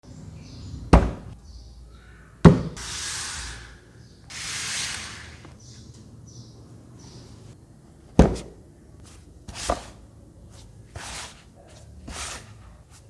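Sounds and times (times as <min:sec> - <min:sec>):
box knocks: 0:01.0 - 0:01.4, 0:02.4 - 0:02.8, 0:08.2 - 0:08.6
packaging rubbing or sliding: 0:02.8 - 0:05.6, 0:11.0 - 0:11.5, 0:12.1 - 0:13.0.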